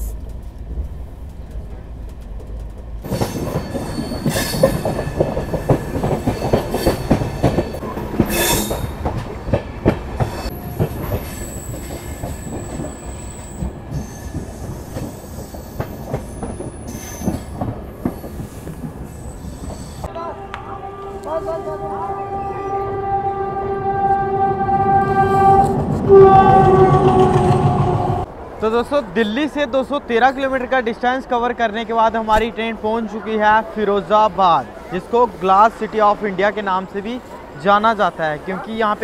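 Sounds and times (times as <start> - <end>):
train wheels clattering: 0.2 - 20.1
high wheel squeals: 3.0 - 9.5, 10.2 - 20.1.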